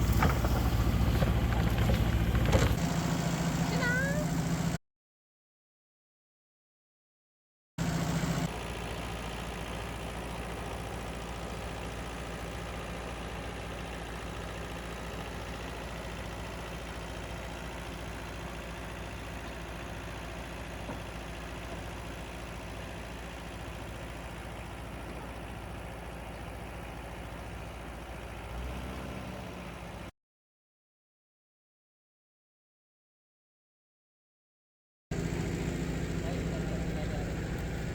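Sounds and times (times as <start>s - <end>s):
harvesting machine engine running: 0.0s - 4.8s, 7.8s - 30.1s, 35.1s - 37.9s.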